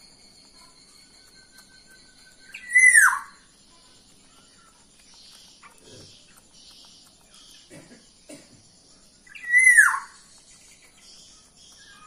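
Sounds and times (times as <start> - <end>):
faint high-pitched tones: 0.0 - 7.6.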